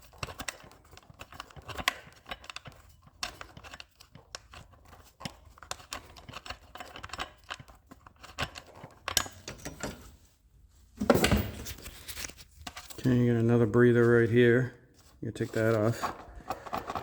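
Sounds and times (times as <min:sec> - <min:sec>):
hand tools clicking and tapping: 0:00.0 - 0:10.0.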